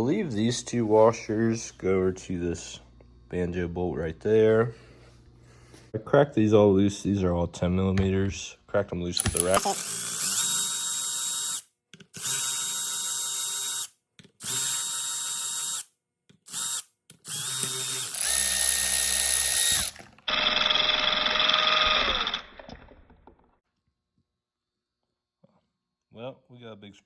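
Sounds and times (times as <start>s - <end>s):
power tool motor whining: 9.2s - 11.6s, 16.5s - 23.0s.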